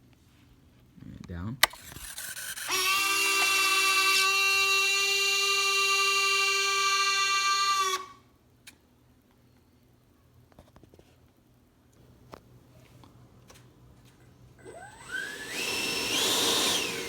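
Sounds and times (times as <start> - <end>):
landing gear motors whining: 1.6 - 8.0, 14.6 - 17.0.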